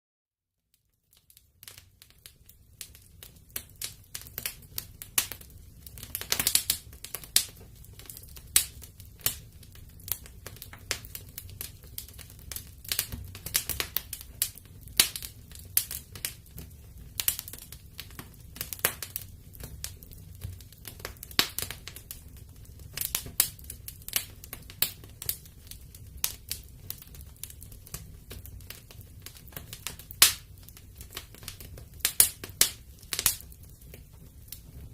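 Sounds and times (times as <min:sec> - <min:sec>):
wood fire crackling: 0:00.7 - 0:34.9.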